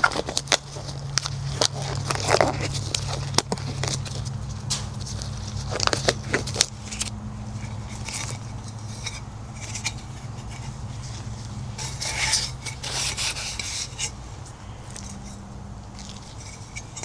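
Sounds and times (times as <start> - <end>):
steady low hum: 0.0 - 17.0
scrubbing on a hard surface: 5.0 - 15.4.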